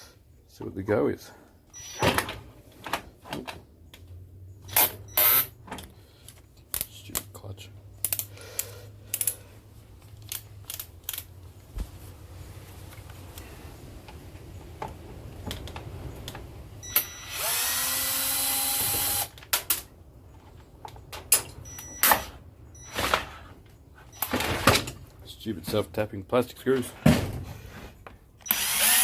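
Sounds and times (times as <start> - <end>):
cordless drill spinning: 17.2 - 19.3, 28.5 - 29.0.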